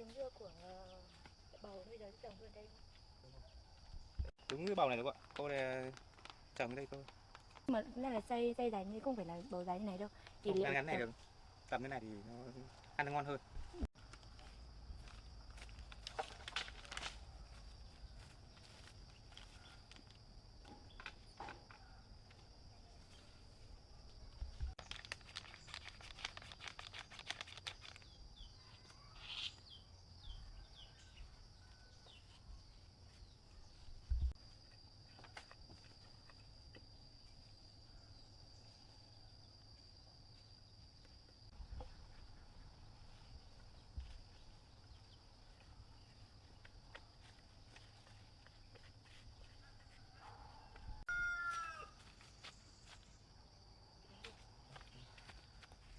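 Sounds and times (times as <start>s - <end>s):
small rustling clicks: 24.8s - 28.2s
short bird chirps: 28.5s - 29.8s.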